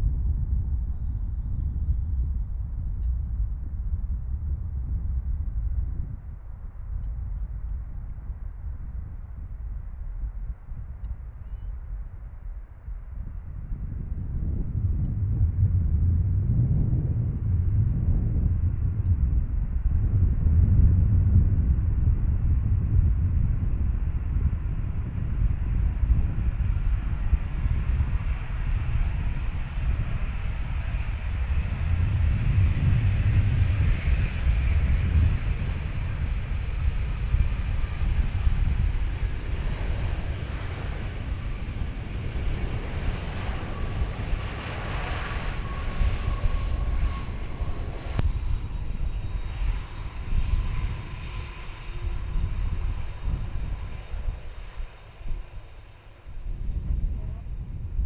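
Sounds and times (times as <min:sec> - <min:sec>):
jet engine rumble: 0:00.0 - 0:58.0
high jet engine whistle: 0:37.1 - 0:56.1.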